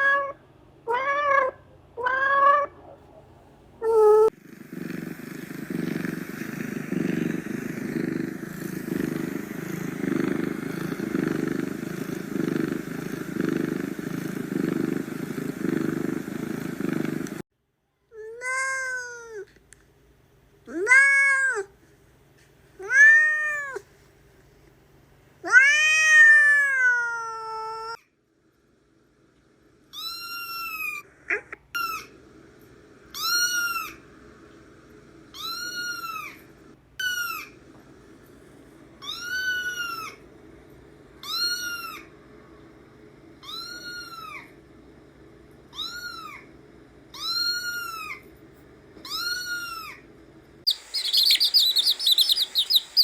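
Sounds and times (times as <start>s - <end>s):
higher-pitched cat meowing: 0.0s - 2.8s
cat meowing: 0.0s - 3.0s, 3.8s - 4.3s.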